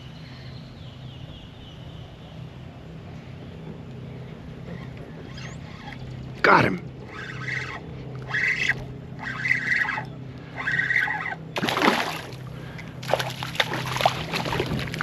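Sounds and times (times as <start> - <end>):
steady low hum: 0.0 - 15.0
fishing reel cranking: 7.1 - 11.4
water splashing: 11.6 - 15.0.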